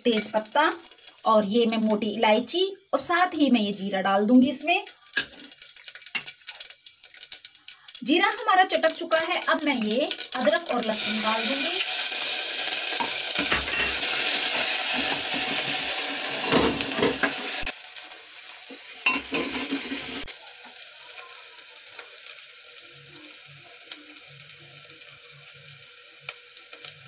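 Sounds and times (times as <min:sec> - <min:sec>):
garlic sizzling in hot oil: 0:00.0 - 0:27.0
metal spoon scraping pot: 0:19.1 - 0:20.3.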